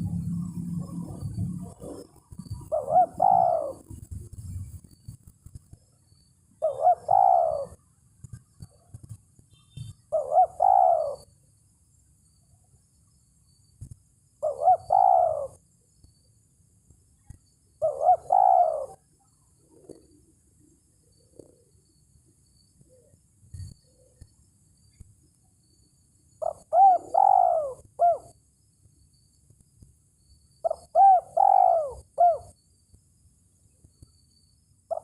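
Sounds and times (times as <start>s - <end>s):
dove cooing: 0.0s - 4.1s, 6.6s - 7.8s, 10.1s - 11.3s, 14.4s - 15.6s, 17.8s - 19.0s, 19.6s - 20.3s, 21.1s - 21.8s, 26.4s - 28.4s, 30.6s - 32.5s.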